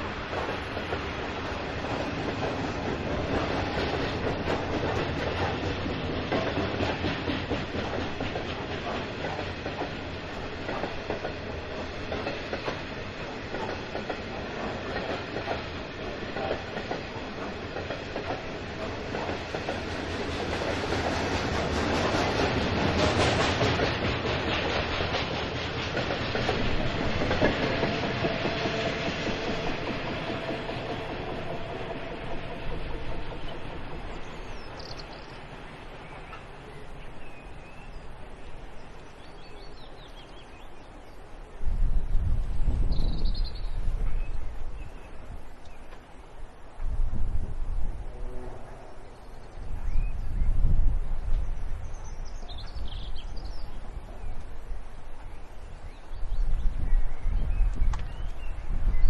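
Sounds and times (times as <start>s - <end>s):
freight train wheels clattering: 0.0s - 38.0s.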